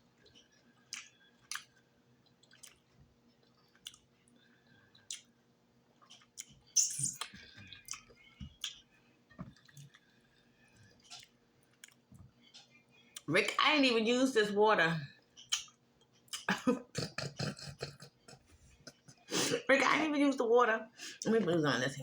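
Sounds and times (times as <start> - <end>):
faint low hum: 0.0 - 22.0
person chewing close up: 0.2 - 8.9, 9.5 - 10.2, 10.9 - 13.3
wet mouth clicks and smacks: 0.9 - 1.7, 2.4 - 2.8, 3.7 - 4.0, 5.0 - 5.3, 6.0 - 8.8, 15.4 - 19.0.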